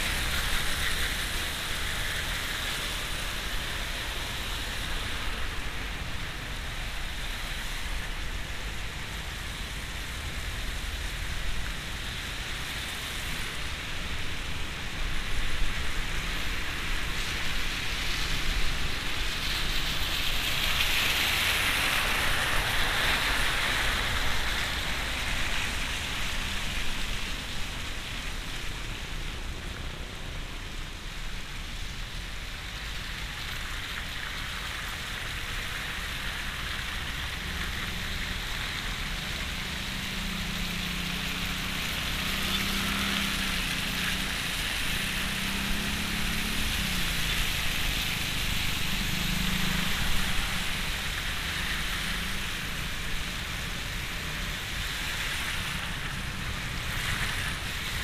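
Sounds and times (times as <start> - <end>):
rain on car roof: 15.1 - 58.0.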